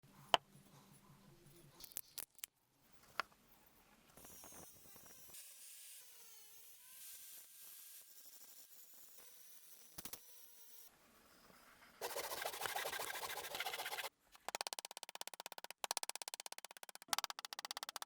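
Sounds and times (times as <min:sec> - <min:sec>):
hand tool clicks and knocks: 0:14.4 - 0:18.0.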